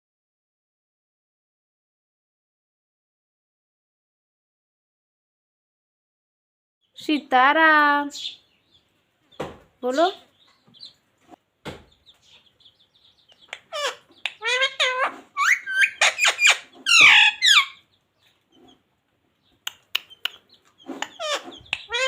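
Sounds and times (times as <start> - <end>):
parakeet chattering: 12.5 - 17.9, 19.5 - 22.0.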